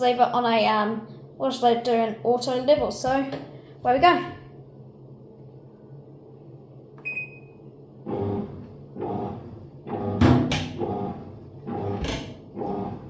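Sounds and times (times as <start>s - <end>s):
washing machine electronic beep: 7.0s - 7.6s
washing machine motor turning: 8.0s - 13.0s.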